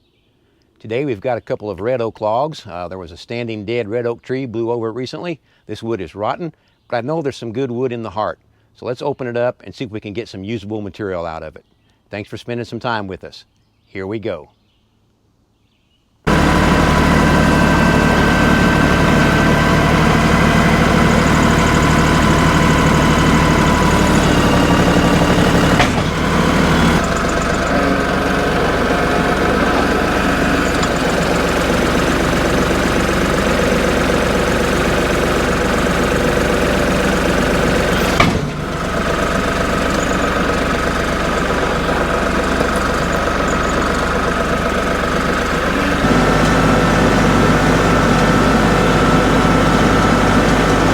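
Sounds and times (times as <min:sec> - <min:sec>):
sawmill engine running: 0:16.3 - 0:50.9.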